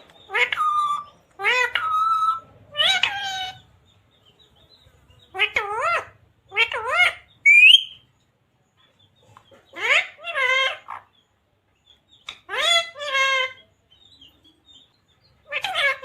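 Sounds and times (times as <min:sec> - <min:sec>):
parrot calling: 0:00.2 - 0:03.7, 0:05.3 - 0:08.0, 0:09.6 - 0:11.2, 0:12.2 - 0:13.7, 0:15.4 - 0:16.0.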